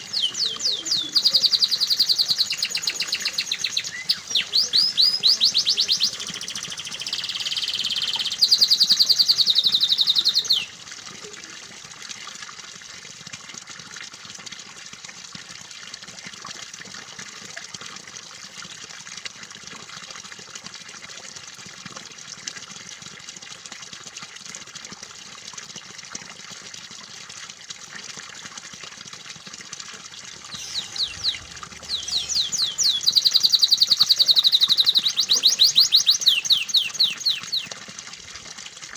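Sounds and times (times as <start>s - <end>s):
canary singing trills: 0.0s - 10.7s, 30.5s - 37.8s
trickling water: 0.0s - 38.9s.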